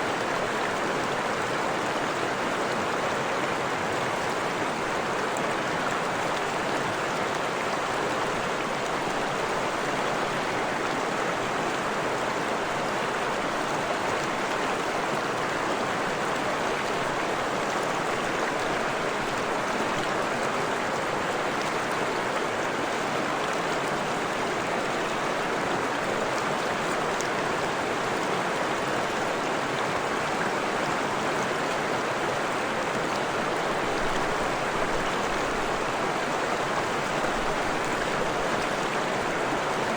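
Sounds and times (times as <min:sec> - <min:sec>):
stream rushing and babbling: 0:00.0 - 0:39.9.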